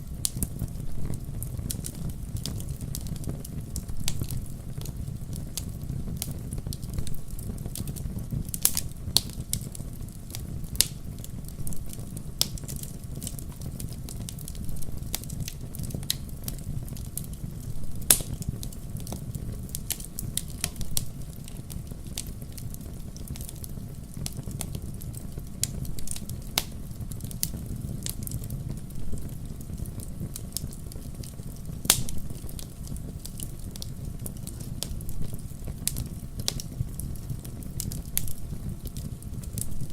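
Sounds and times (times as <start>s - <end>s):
low rumble of flame: 0.0s - 39.9s.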